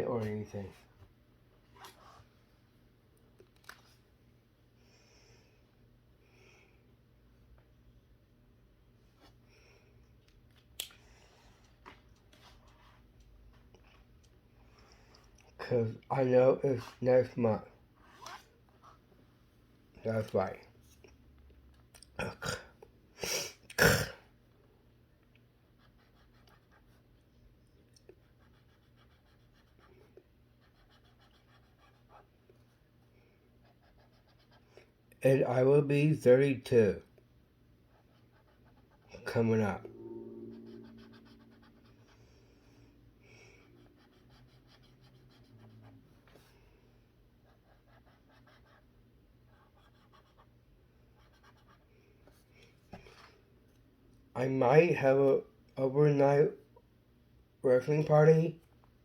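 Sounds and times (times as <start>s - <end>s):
low steady hum: 0.0s - 59.0s
brush pen scratching on paper: 28.2s - 32.3s, 37.9s - 39.3s, 43.7s - 46.5s, 47.4s - 48.9s, 49.5s - 50.6s.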